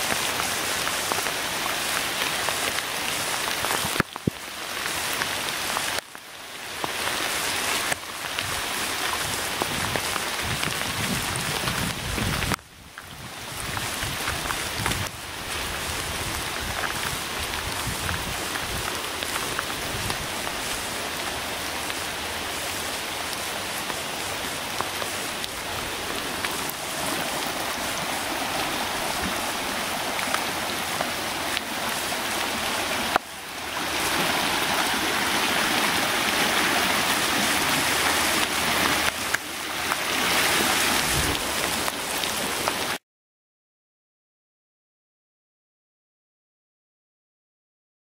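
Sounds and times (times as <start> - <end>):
heavy rain falling: 0.0 - 43.0
running water: 13.5 - 43.0.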